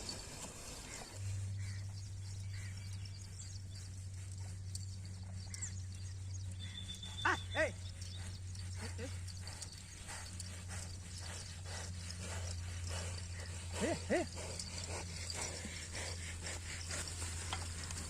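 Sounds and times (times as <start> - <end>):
hooves clopping: 0.0 - 18.0
low hum: 0.1 - 18.0.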